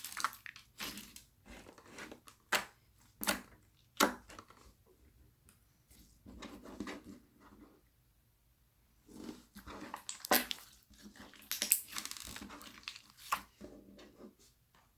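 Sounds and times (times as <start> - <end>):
soft slime squish: 9.0 - 14.6
slime kneaded by hand: 9.1 - 13.6.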